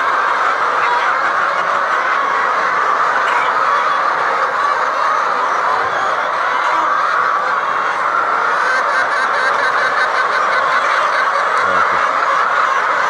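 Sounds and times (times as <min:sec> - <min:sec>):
chickens calling: 0:00.0 - 0:13.0.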